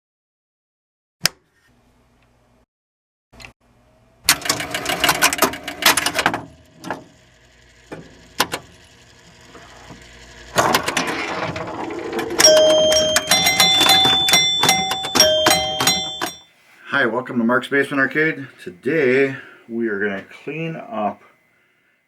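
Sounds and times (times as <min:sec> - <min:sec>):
electronic tones: 0:12.3 - 0:16.3.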